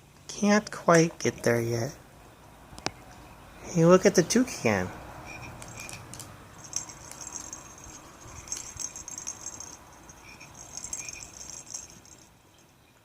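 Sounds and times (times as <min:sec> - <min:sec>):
toy chirps: 0:05.3 - 0:06.0, 0:08.3 - 0:12.3
toy rattling: 0:05.3 - 0:12.8.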